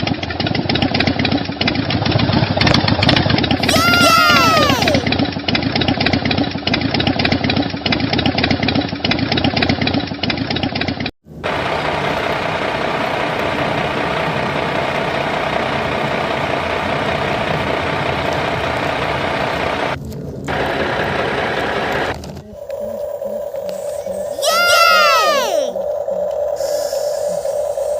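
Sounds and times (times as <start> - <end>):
machine motor running: 11.4 - 24.0.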